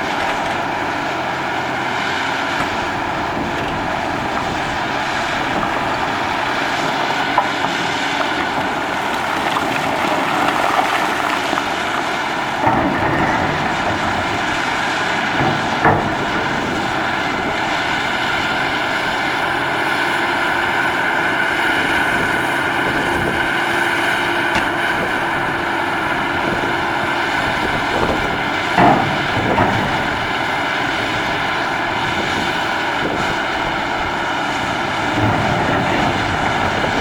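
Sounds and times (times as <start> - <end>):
hydraulic shovel running: 0.0 - 37.0
short knocks: 12.4 - 31.7.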